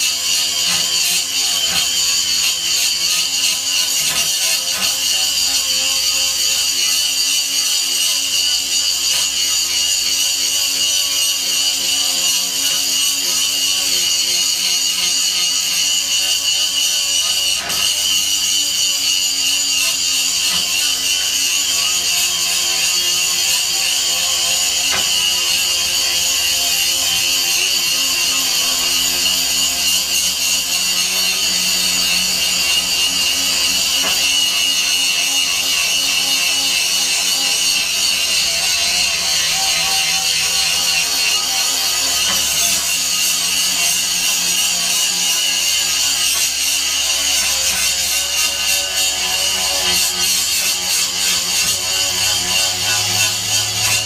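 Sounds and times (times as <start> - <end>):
angle grinder grinding metal: 0.0 - 54.0.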